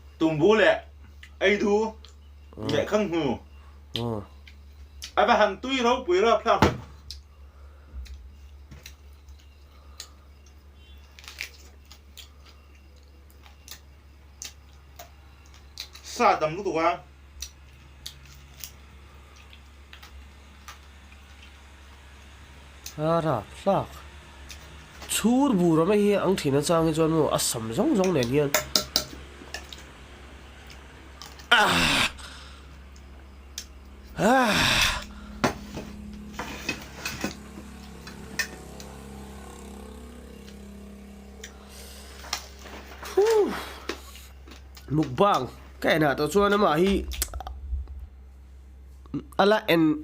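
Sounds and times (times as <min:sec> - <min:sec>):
low electrical hum: 0:00.0 - 0:50.0
person exclaiming: 0:31.5 - 0:32.2, 0:34.2 - 0:35.1, 0:43.0 - 0:43.8.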